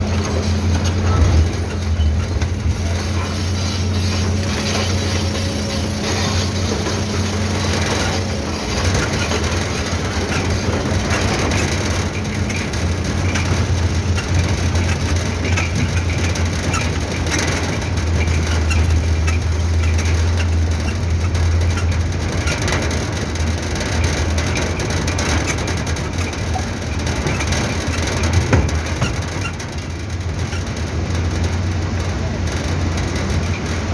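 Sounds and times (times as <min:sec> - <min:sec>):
clatter and rattle: 0:00.0 - 0:33.9
diesel truck engine running: 0:00.0 - 0:33.9.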